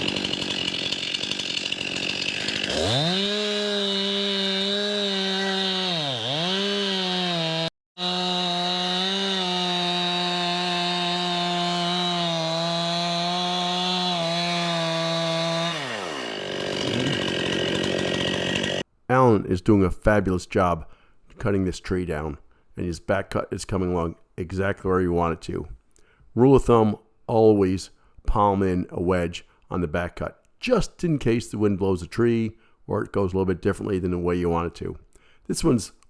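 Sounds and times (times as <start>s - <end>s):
chainsaw cutting wood: 0.0s - 18.9s.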